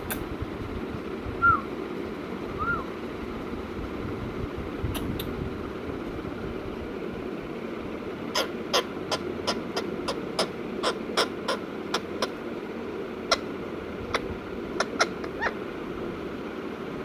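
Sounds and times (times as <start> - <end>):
parakeet sharp calls: 8.3 - 12.4, 13.2 - 15.6.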